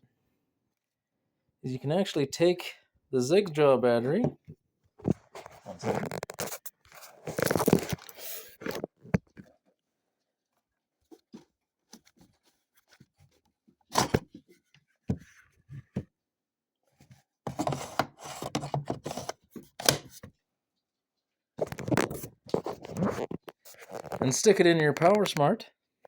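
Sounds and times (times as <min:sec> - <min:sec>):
clattering and scraping: 0:05.0 - 0:09.3, 0:21.6 - 0:24.4.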